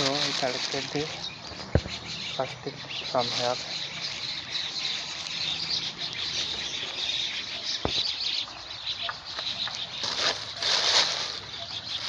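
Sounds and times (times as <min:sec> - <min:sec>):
birds chirping: 0:00.0 - 0:12.0
insects: 0:00.0 - 0:12.0
short rustle: 0:10.0 - 0:12.0.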